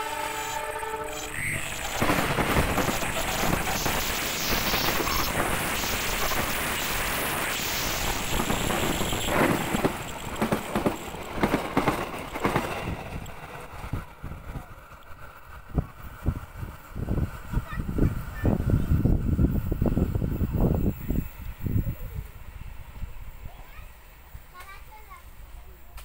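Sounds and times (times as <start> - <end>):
train coaches rushing past: 0.0 - 25.9
wheels clacking over rail joints: 0.8 - 16.6.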